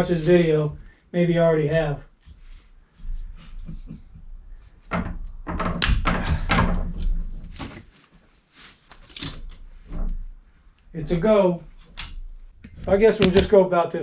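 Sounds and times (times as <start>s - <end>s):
thuds and knocks of building work: 2.3s - 7.9s, 11.9s - 13.6s.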